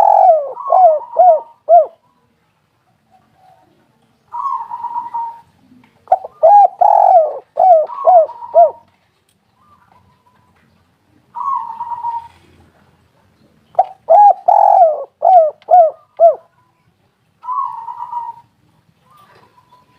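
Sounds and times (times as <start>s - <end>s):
dove cooing: 0.0s - 2.0s, 3.1s - 8.9s, 11.3s - 12.7s, 13.8s - 16.6s, 17.4s - 19.9s.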